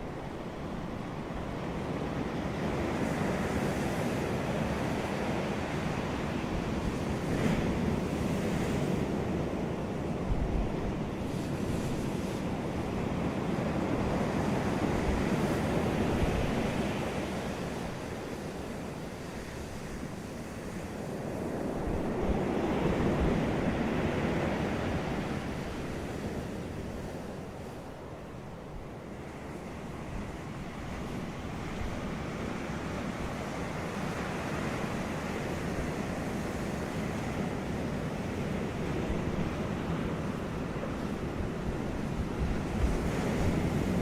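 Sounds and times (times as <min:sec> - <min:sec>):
ocean waves breaking: 0:00.0 - 0:44.0
wind noise on microphone: 0:00.0 - 0:44.0.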